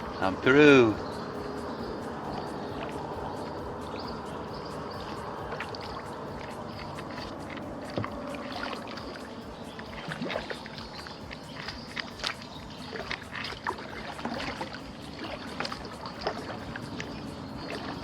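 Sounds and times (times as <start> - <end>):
running water: 0.0 - 18.0
paddle splashes and knocks: 4.9 - 18.0.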